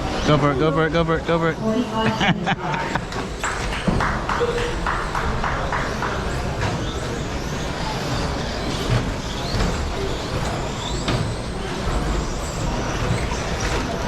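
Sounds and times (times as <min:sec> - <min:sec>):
electric rc trucks racing: 0:02.9 - 0:14.0.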